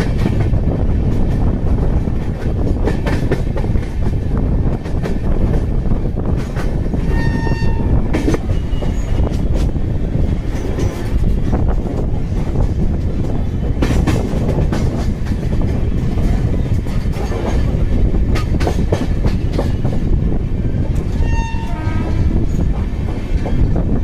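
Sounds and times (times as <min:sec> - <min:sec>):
wheels clattering over rail joints: 0:00.0 - 0:20.1
train rumbling along track: 0:00.0 - 0:24.0
train horn: 0:07.0 - 0:08.7, 0:21.1 - 0:22.6.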